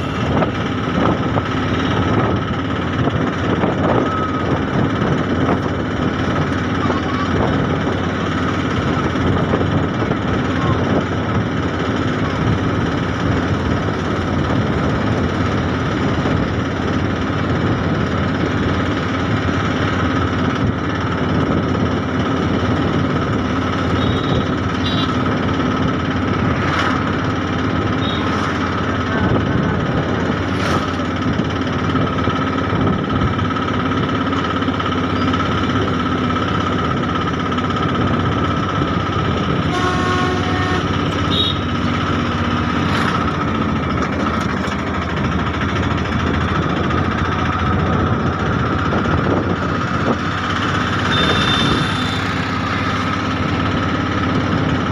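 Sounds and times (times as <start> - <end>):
constant whine: 0.0 - 54.9
train rumbling and rattling: 0.0 - 54.9.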